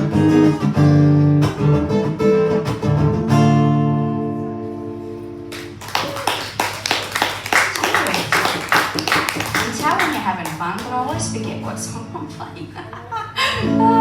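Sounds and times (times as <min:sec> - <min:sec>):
acoustic guitar strumming: 0:00.0 - 0:05.8, 0:09.7 - 0:12.6
audience clapping: 0:05.5 - 0:11.2.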